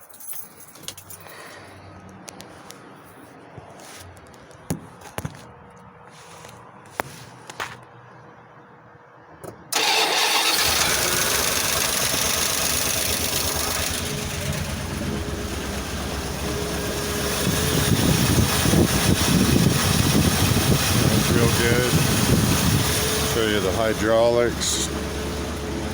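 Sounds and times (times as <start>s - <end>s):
truck engine cold-starting: 9.7s - 25.9s.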